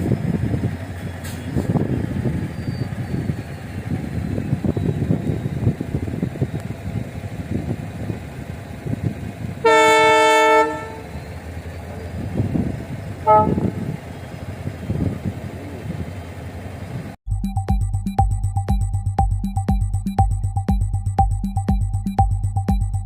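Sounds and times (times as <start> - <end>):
train running rumble: 0.0 - 17.2
train horn: 9.6 - 11.1, 13.2 - 14.0
electronic music: 17.2 - 23.0.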